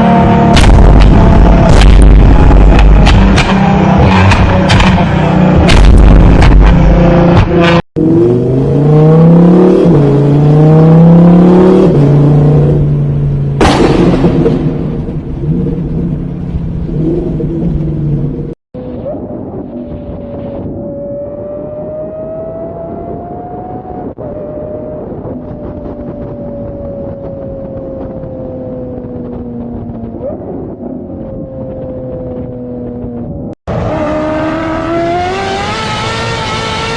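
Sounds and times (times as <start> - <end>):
car engine accelerating: 0.0 - 36.9
loud bang: 0.5 - 7.7, 13.6 - 15.4.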